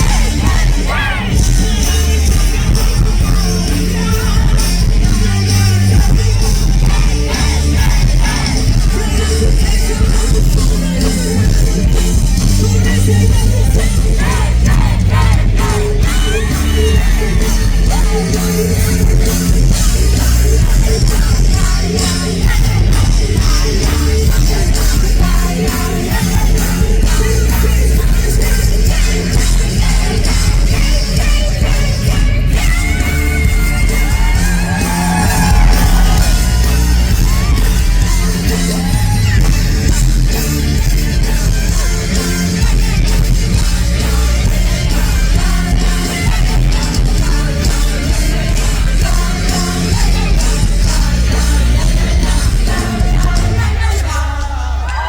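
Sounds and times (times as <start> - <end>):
person singing: 0.0 - 40.2
rock band playing live: 0.0 - 55.0.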